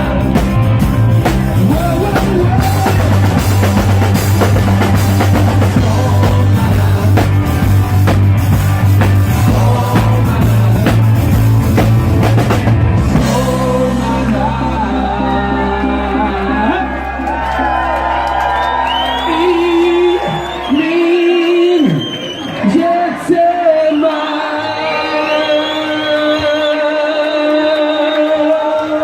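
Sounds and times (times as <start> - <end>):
person singing: 0.0 - 11.8, 12.4 - 17.4
drum kit: 0.0 - 15.2
live band playing upbeat song: 0.0 - 21.1.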